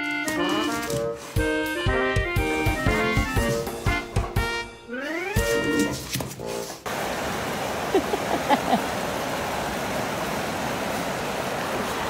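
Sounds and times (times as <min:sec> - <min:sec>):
music: 0:00.0 - 0:06.8.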